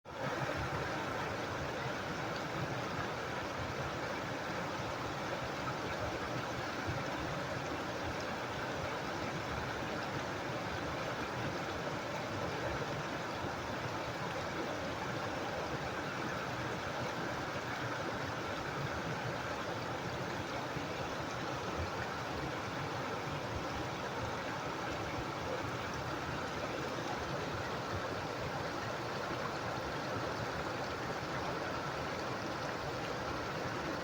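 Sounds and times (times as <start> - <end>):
stream water rushing: 0.1 - 34.0.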